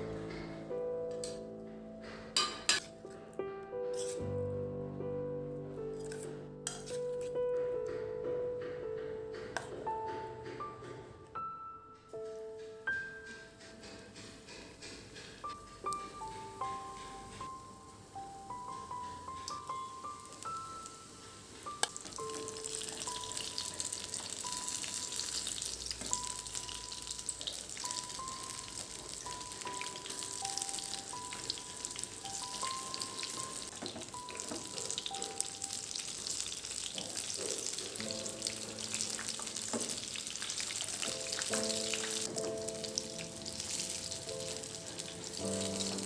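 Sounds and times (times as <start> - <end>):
soft background music: 0.0 - 46.0
food frying in oil: 18.4 - 46.0.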